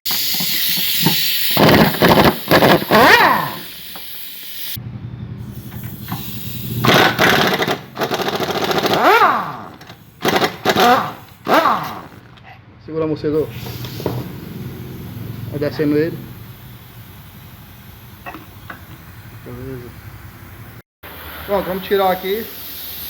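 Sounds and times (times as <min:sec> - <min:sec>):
pneumatic impact wrench whining: 0:00.1 - 0:04.8, 0:05.4 - 0:12.4, 0:13.5 - 0:19.1
steady air hiss: 0:00.1 - 0:04.8, 0:05.5 - 0:06.8, 0:13.4 - 0:23.0.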